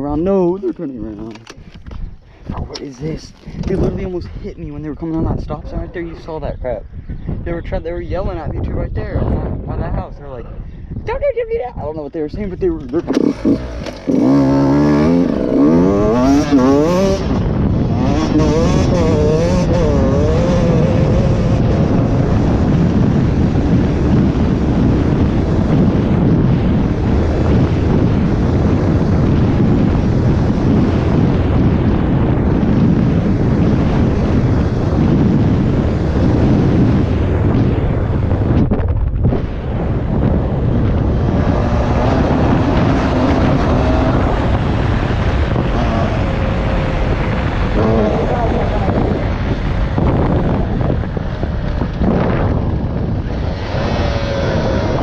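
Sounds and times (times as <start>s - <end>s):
wind on microphone: 0.0s - 55.0s
dirt bike engine revving: 12.8s - 38.6s, 39.4s - 55.0s.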